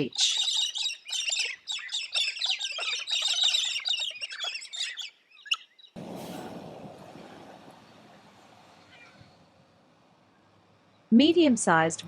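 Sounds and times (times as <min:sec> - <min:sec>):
birds chattering calls: 0:00.0 - 0:06.1, 0:07.2 - 0:09.6
outdoor background hiss: 0:05.1 - 0:12.0.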